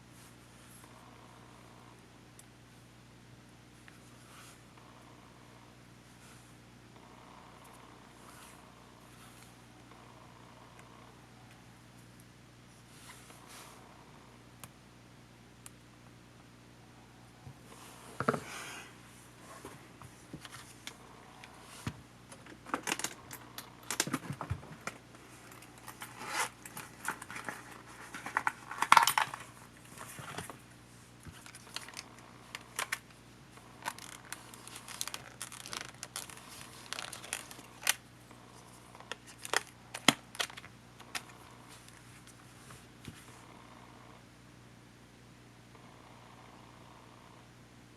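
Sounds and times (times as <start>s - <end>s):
clicks and clinks of small parts: 26.7s - 29.4s.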